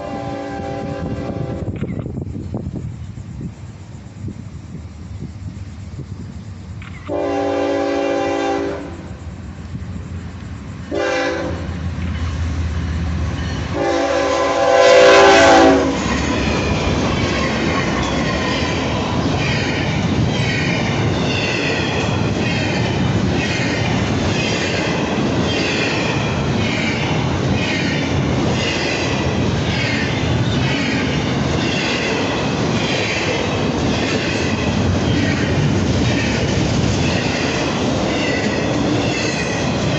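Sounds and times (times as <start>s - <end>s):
locomotive air horn blasts: 0.0s - 1.7s, 7.1s - 9.0s, 10.9s - 11.7s, 13.7s - 16.0s
train rumbling past: 0.0s - 39.9s.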